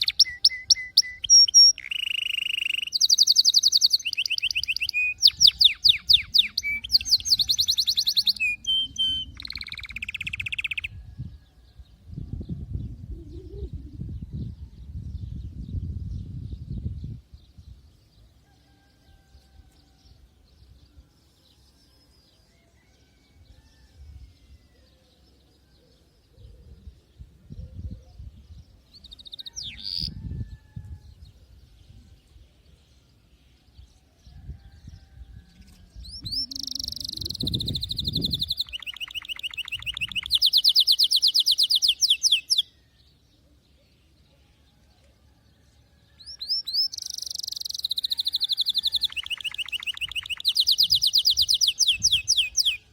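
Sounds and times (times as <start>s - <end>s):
canary singing trills: 0.0s - 11.0s, 35.0s - 42.8s, 46.2s - 52.9s.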